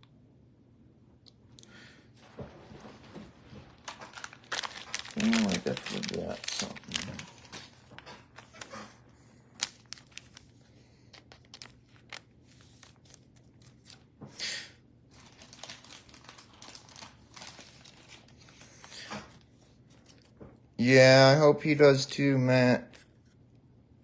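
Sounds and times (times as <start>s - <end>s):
plastic packaging rustling: 2.2s - 14.2s, 15.1s - 20.6s.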